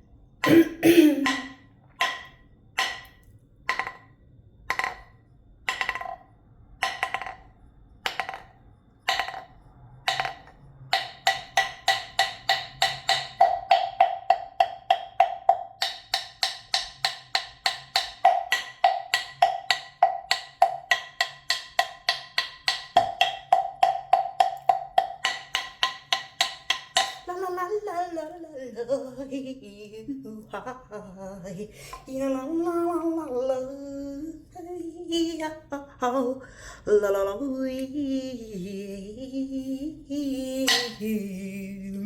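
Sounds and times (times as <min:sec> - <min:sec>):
hand striking wooden percussion: 0:00.4 - 0:28.4, 0:40.3 - 0:41.5.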